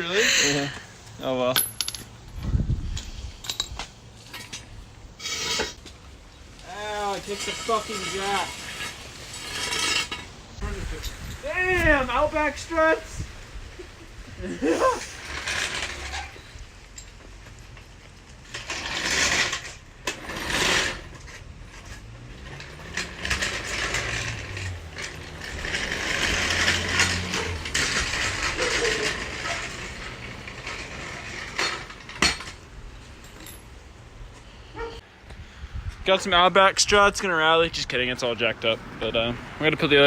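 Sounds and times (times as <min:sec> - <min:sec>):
metal clinking: 0:01.5 - 0:02.2.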